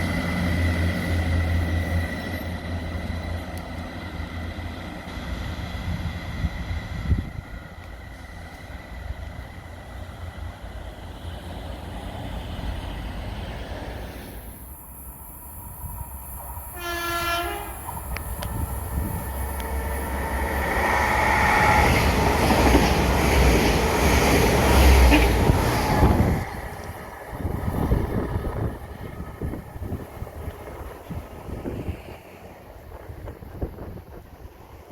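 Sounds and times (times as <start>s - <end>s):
train passing rumble: 0.0s - 34.9s
train horn: 16.7s - 17.8s, 25.0s - 25.6s.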